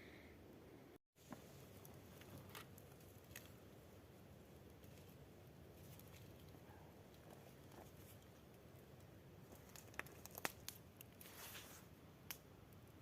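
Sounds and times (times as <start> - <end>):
soft rustle: 4.6 - 12.0.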